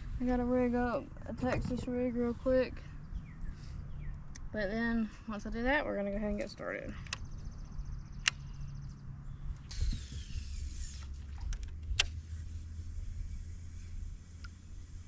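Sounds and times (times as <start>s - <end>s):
low steady hum: 0.0s - 15.0s
sharp clicks: 8.2s - 8.6s
rustle: 9.5s - 15.0s.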